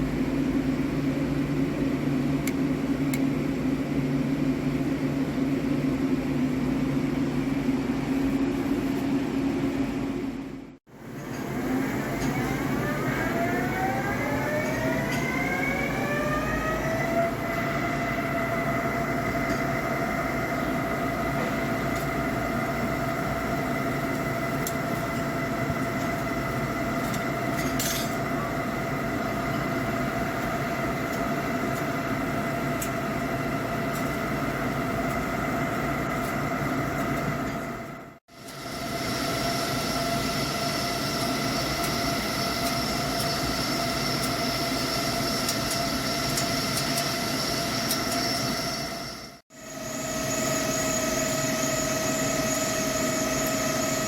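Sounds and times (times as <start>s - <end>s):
mechanical hum: 0.0s - 54.0s
lathe spindle whining: 11.3s - 27.6s, 38.4s - 54.0s.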